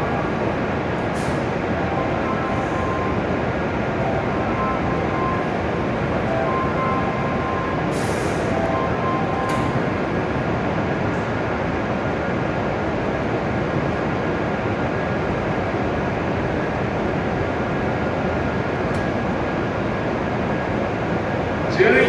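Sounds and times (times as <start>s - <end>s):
train equipment humming: 0.0s - 10.6s.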